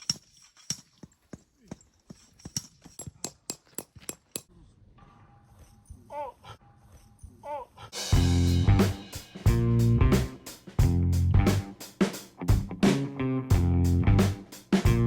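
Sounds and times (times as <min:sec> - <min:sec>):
loud music with bass line: 0:08.1 - 0:11.6, 0:12.5 - 0:15.0.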